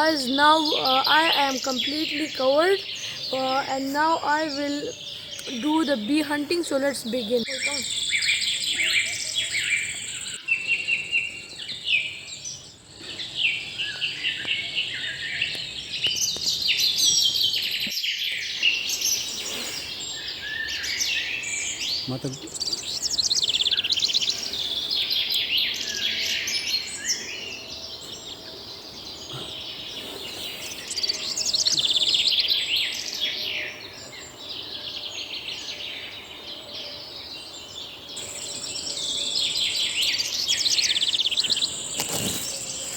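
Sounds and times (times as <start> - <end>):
birds chirping and trilling: 0.0 - 42.9
high-pitched insect whine: 38.2 - 42.9.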